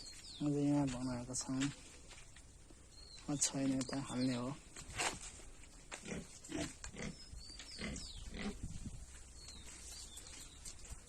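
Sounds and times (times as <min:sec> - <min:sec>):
pigs grunting: 0:06.0 - 0:07.2, 0:07.8 - 0:08.7.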